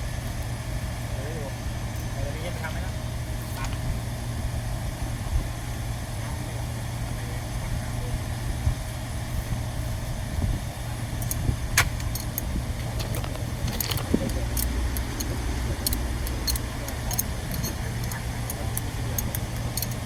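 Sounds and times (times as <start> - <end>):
machinery humming: 10.5 - 20.0
sharp clicks: 11.2 - 20.0.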